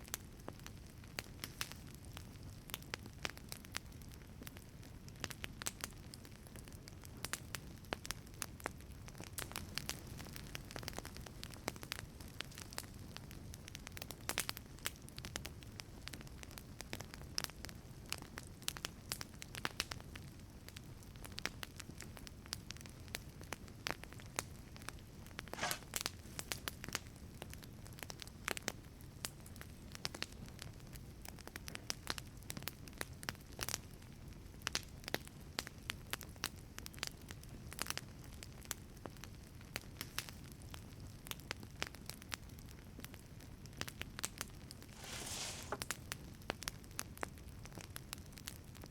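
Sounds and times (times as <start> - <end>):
low rumble of flame: 0.0 - 45.0
fire crackling and popping: 0.0 - 48.9
brief hiss: 25.6 - 26.0, 44.9 - 45.9.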